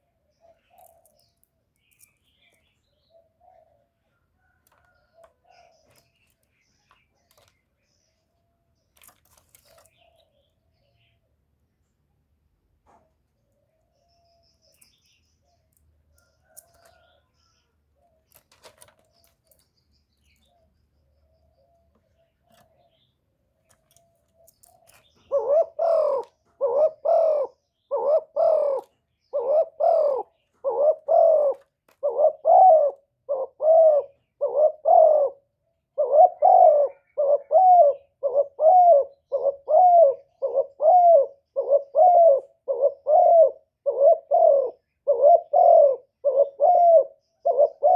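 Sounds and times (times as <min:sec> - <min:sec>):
dove cooing: 0:03.0 - 0:06.1, 0:23.9 - 0:47.9.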